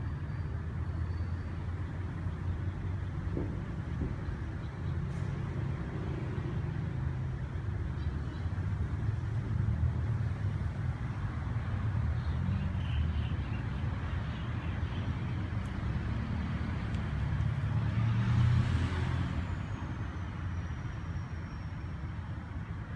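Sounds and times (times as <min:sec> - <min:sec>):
traffic rumble: 0:00.0 - 0:22.9
vehicle passing: 0:08.5 - 0:20.9.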